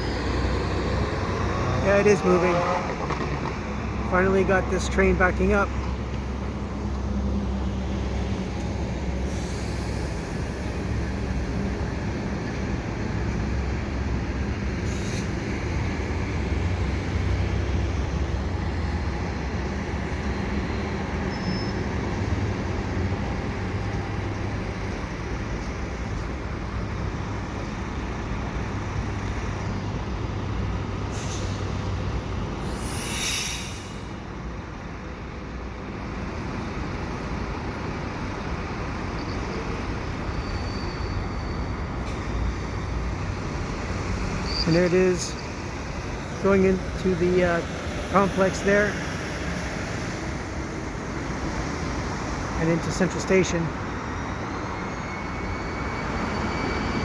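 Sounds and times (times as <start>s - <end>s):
train locomotive droning: 0.0s - 29.7s, 37.0s - 57.0s
air brake hiss: 9.2s - 10.5s, 14.8s - 15.4s, 31.1s - 31.7s, 32.6s - 34.2s.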